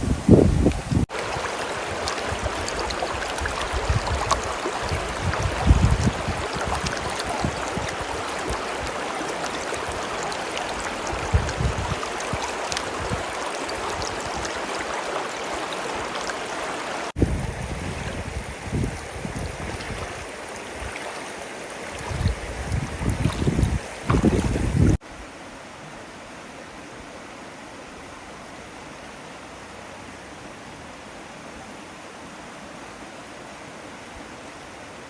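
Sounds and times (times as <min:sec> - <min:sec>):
wind rumble on microphone: 0:00.0 - 0:01.1, 0:01.9 - 0:09.0, 0:11.0 - 0:14.5, 0:17.2 - 0:21.0, 0:21.9 - 0:25.0
river water flowing: 0:00.0 - 0:35.0.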